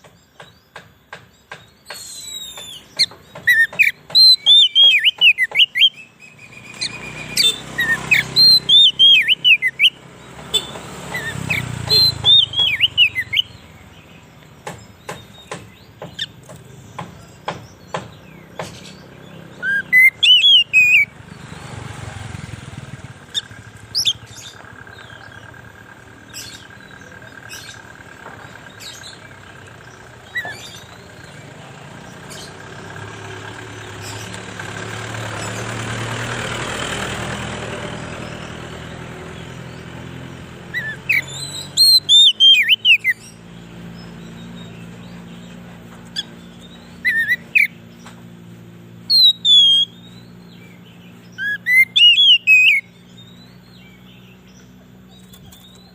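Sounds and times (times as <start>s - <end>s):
bird singing whistled phrases: 3.5s - 10.0s, 10.6s - 13.6s, 19.6s - 21.1s, 40.7s - 43.2s, 46.2s - 47.8s, 49.1s - 54.1s.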